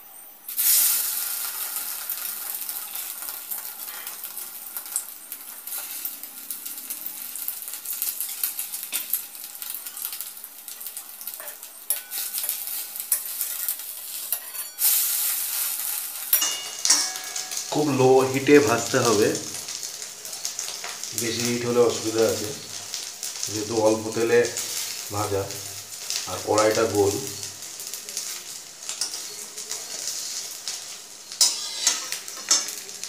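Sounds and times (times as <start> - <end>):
bread sizzling in hot oil: 0.0 - 33.0
metal spatula scraping pan: 11.4 - 15.0, 31.4 - 32.8.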